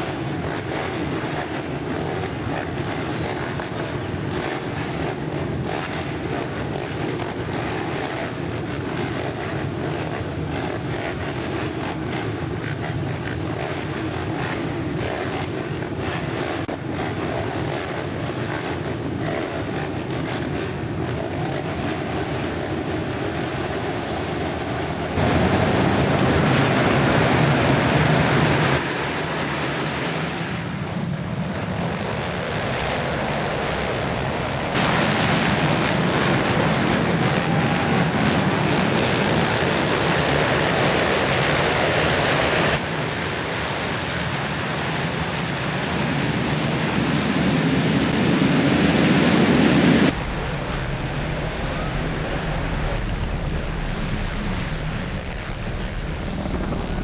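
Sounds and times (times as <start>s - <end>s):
motorcycle engines racing: 0.0s - 57.0s
wind: 0.0s - 57.0s
track noise: 24.6s - 42.8s, 50.0s - 57.0s.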